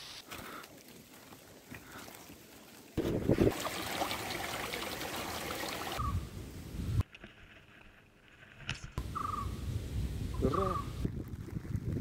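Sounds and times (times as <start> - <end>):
rushing water: 0.8 - 6.1
trilled bird chirps: 9.1 - 9.5.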